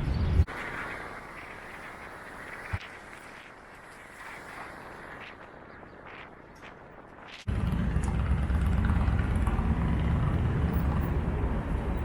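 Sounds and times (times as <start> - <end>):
wind and road noise rumble: 0.0 - 12.0
quiet street ambience: 5.2 - 12.0.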